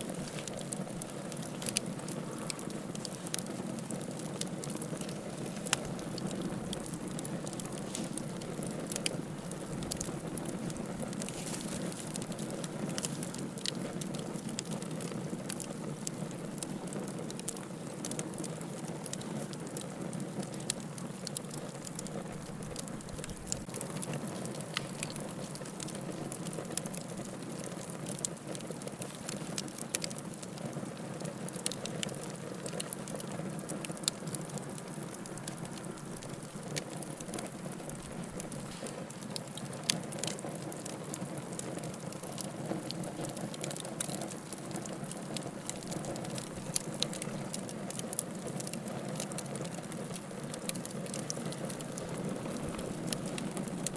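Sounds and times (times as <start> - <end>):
low rush of flame: 0.0 - 18.0, 49.6 - 53.9
logs crackling and popping: 0.0 - 53.9.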